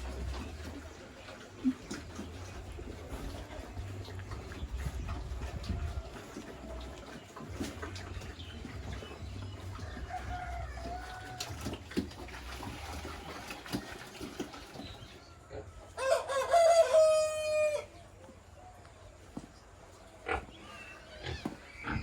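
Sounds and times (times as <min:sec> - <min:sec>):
rooster crowing: 0:09.9 - 0:11.7, 0:16.0 - 0:17.9.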